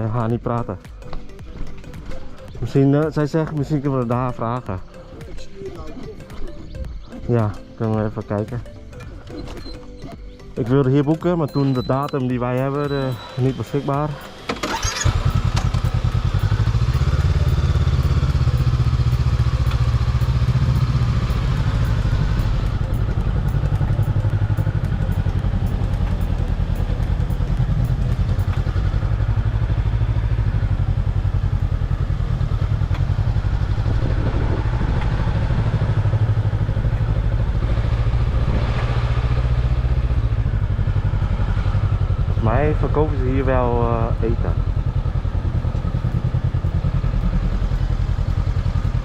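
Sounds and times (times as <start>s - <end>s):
motorbike engine idling: 7.8s - 34.7s, 40.1s - 49.0s.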